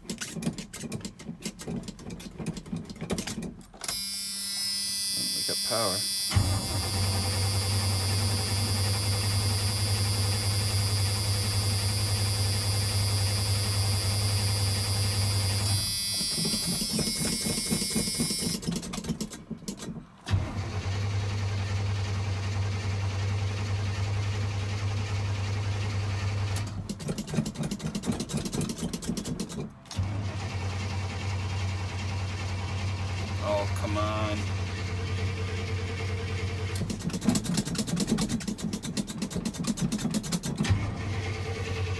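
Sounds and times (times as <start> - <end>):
starter motor cranking: 5.2 - 41.9
engine running rough: 6.3 - 15.7, 20.2 - 39.9, 40.5 - 41.9.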